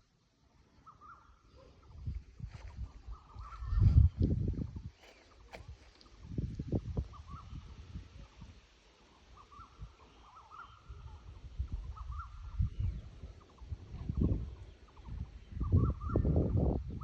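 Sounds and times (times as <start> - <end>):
birds chirping: 7.1 - 16.7.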